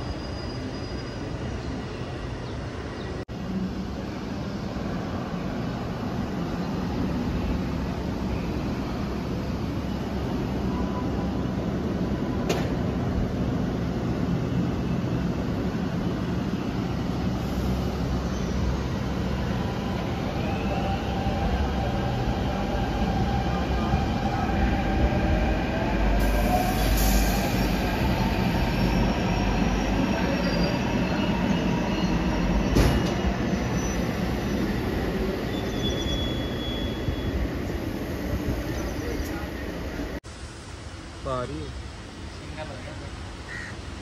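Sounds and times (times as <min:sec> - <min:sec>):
train wheel squeals: 0:00.0 - 0:01.8, 0:26.1 - 0:37.7
train rumbling on track: 0:00.0 - 0:44.0.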